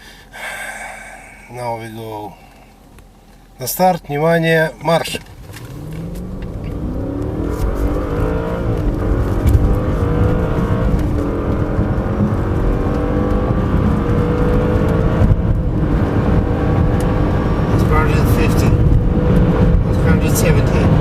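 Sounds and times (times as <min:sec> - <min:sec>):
car engine accelerating hard: 0:05.2 - 0:21.0.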